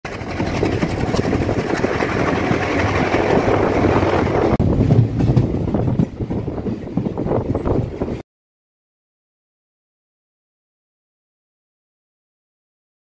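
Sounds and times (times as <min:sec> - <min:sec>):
train wheels rolling over rails: 0:00.1 - 0:08.2.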